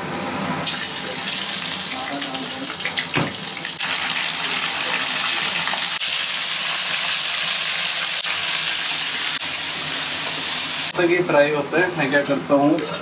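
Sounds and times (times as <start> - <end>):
chicken sizzling in hot oil: 0.6 - 11.0.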